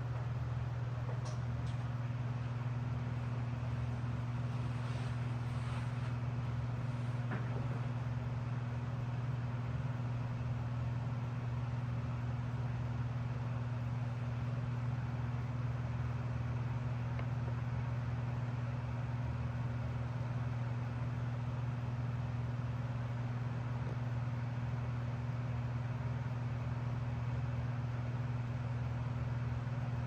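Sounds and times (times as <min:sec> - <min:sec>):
electric fan humming: 0:00.0 - 0:21.8.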